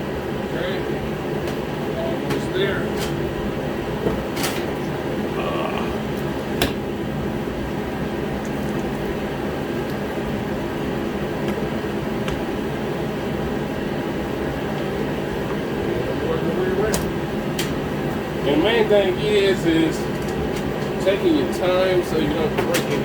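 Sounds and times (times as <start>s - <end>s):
shop heater fan humming: 0.0s - 23.0s.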